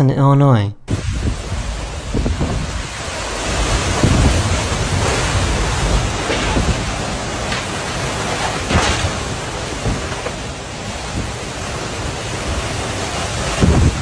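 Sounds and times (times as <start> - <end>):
strong winds: 0.8 - 14.0
heavy rain: 0.9 - 14.0
wind gusts on microphone: 0.9 - 14.0
sharp knocks: 5.9 - 10.5.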